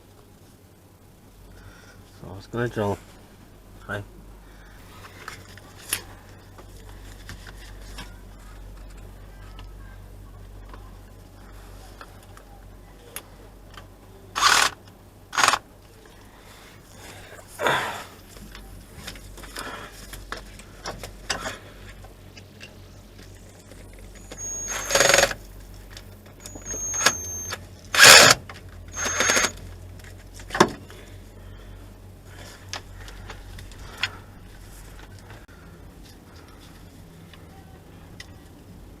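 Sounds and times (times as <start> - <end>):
faint high squeaks: 23.5 - 25.4, 26.4 - 27.6, 28.9 - 29.6.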